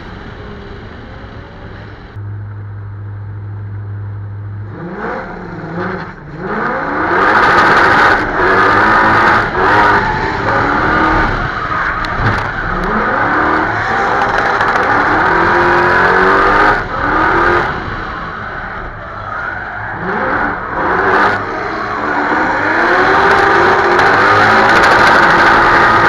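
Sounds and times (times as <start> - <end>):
car engine revving hard: 4.6 - 18.4, 20.0 - 26.0.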